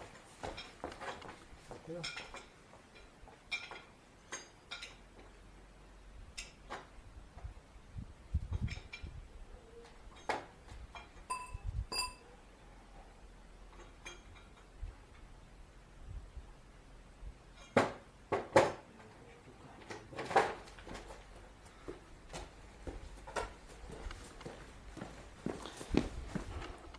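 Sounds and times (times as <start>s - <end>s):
short metal ring: 11.3s - 12.3s.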